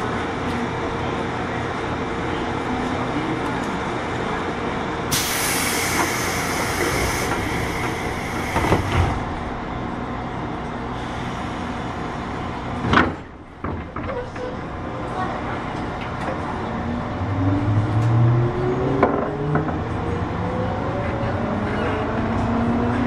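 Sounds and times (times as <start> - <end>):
train wheel and motor noise: 0.0 - 23.0
loud hiss: 5.1 - 9.1.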